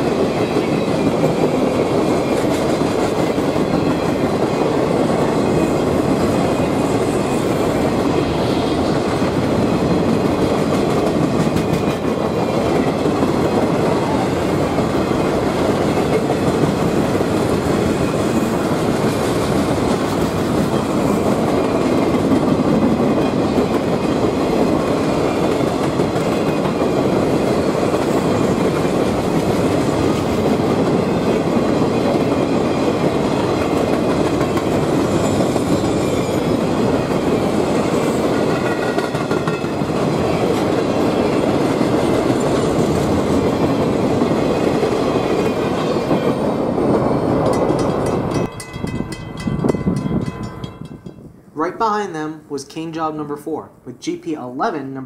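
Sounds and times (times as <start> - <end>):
train wheels rumbling on rails: 0.0 - 51.4.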